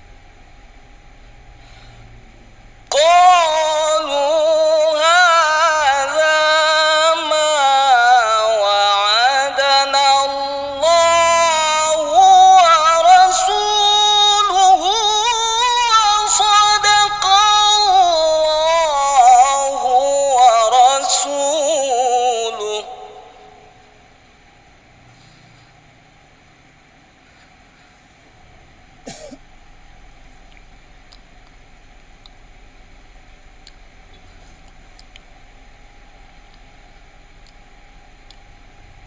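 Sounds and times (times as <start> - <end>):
man chanting recitation: 2.9 - 23.9.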